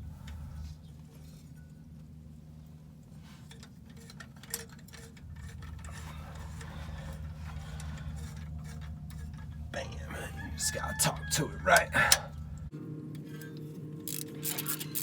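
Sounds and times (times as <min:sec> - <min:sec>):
low hum: 0:05.0 - 0:14.1
ratchet wrench clicking: 0:14.1 - 0:15.0.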